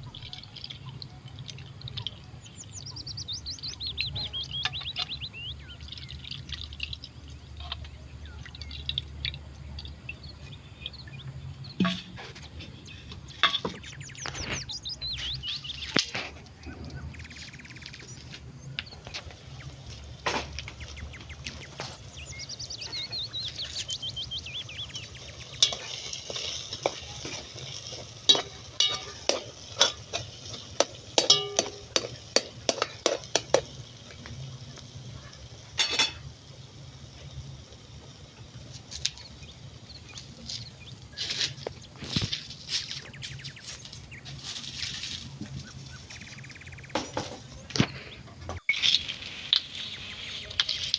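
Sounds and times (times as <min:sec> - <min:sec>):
food sizzling: 0:00.0 - 0:48.0, 0:48.6 - 0:50.9
utensil scraping frying pan: 0:11.8 - 0:16.4, 0:19.0 - 0:36.4
metal knocking on pan: 0:28.3 - 0:33.8.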